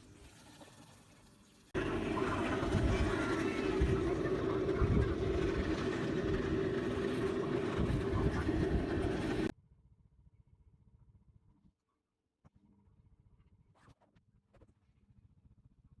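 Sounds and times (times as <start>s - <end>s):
washing machine motor hum: 1.8s - 9.5s
water churning: 1.8s - 9.5s.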